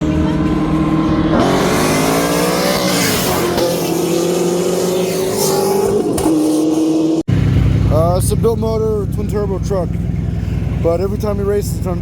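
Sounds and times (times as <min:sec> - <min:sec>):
vehicle engine accelerating: 0:00.0 - 0:12.0.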